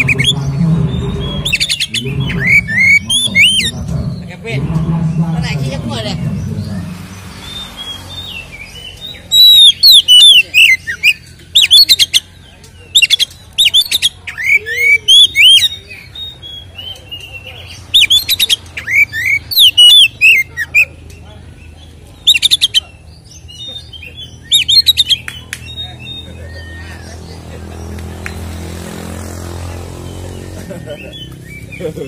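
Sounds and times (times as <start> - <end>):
bird singing whistles and trills: 0.0 - 3.8, 7.3 - 20.9, 21.7 - 27.2.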